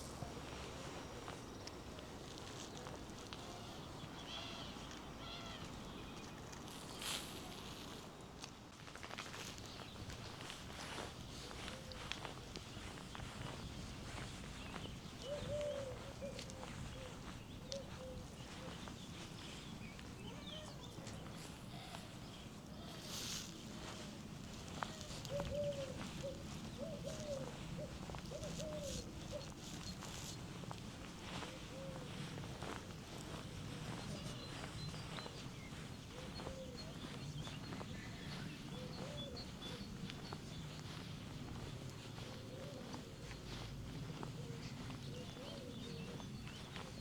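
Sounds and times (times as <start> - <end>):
faint footsteps on street: 0.0 - 47.0
dove cooing: 10.8 - 47.0.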